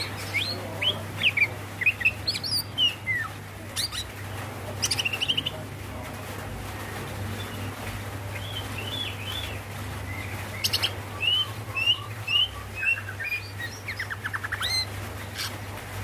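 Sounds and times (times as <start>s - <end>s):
bird chirping: 8.3s - 15.6s.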